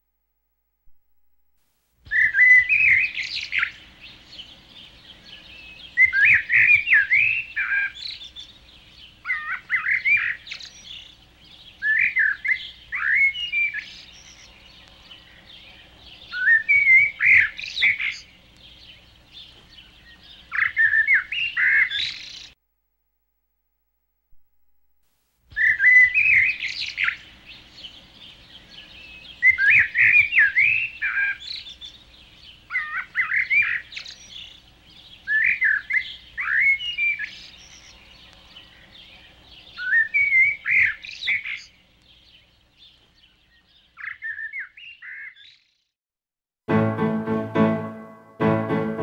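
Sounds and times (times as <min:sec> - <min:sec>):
songbird warbling: 0:02.1 - 0:19.1, 0:32.7 - 0:41.8
faint bird chirps: 0:25.5 - 0:45.7.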